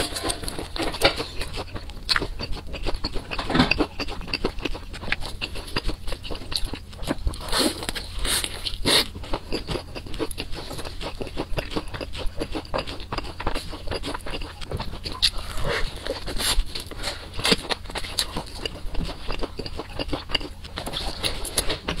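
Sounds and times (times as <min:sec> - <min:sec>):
crunching fried chicken: 0:00.0 - 0:22.0
wet chewing and smacking: 0:00.0 - 0:22.0.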